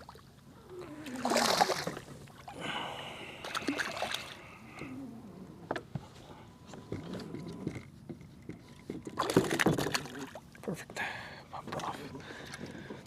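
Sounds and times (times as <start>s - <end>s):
fish splashing in water: 1.0s - 2.1s, 3.2s - 4.5s.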